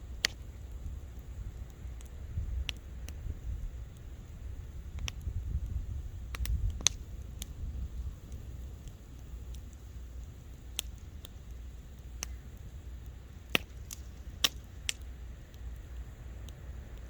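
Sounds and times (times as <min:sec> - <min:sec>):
campfire crackling and popping: 0:00.0 - 0:17.0
low fire rumble: 0:00.0 - 0:17.0.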